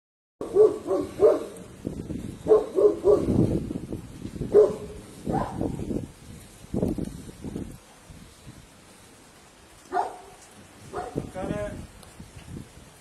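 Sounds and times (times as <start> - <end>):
dog barking: 0.4 - 1.6, 2.4 - 3.4, 4.5 - 5.6, 9.9 - 11.3.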